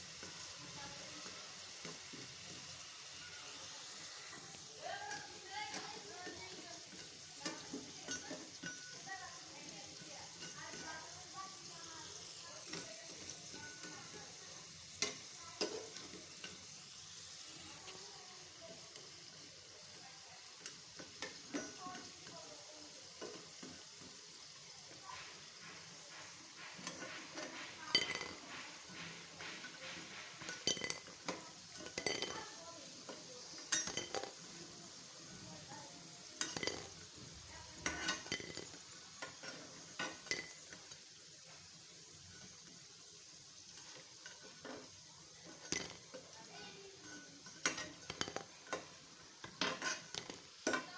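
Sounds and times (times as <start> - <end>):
food sizzling in oil: 0.0 - 50.9
utensil scraping a pan: 24.9 - 34.5, 36.4 - 41.0, 43.8 - 50.9.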